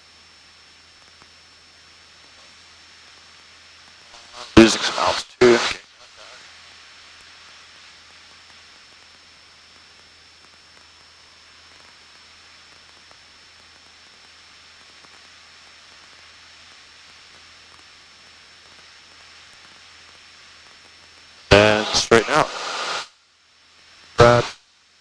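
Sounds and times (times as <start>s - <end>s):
thin high-pitched whine: 4.0s - 6.8s, 20.0s - 23.1s, 24.1s - 24.6s
intercom audio hiss: 4.0s - 8.0s, 21.4s - 23.2s, 24.0s - 24.6s.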